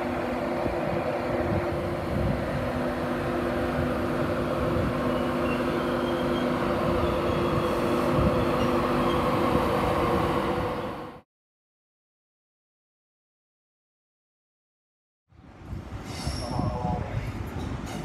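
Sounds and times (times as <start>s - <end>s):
electric locomotive hum: 0.0s - 11.2s
wheels rumbling on rails: 0.0s - 11.2s, 15.4s - 18.0s.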